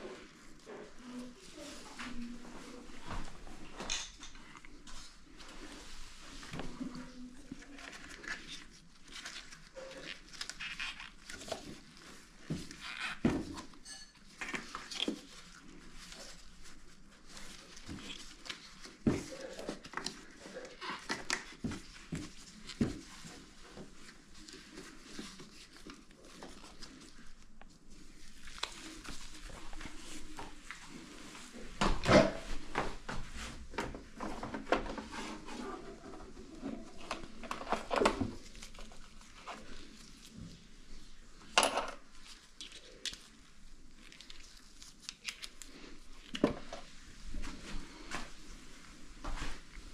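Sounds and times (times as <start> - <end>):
hands rustling: 14.6 - 31.7.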